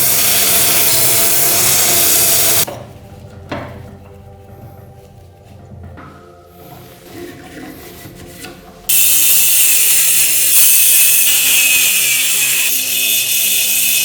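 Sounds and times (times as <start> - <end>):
tool rasping: 0.0 - 2.7, 7.0 - 14.0.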